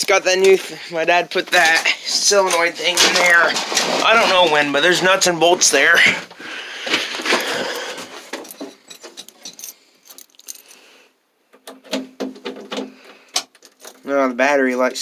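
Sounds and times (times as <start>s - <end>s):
rustling: 0.2s - 11.0s.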